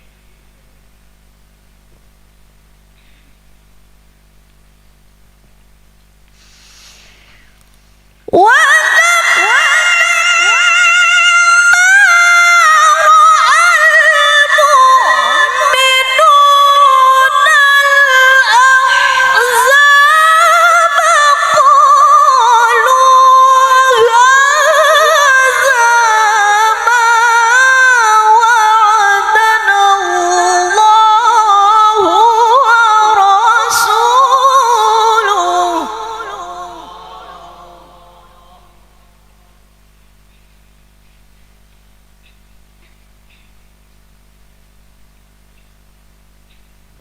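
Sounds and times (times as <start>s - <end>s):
woman reciting melodically: 8.2s - 39.6s.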